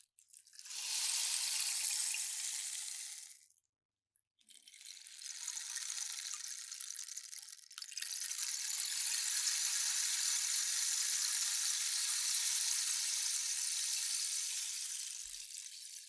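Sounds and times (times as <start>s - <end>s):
rainstick trickling patter: 4.5s - 16.0s.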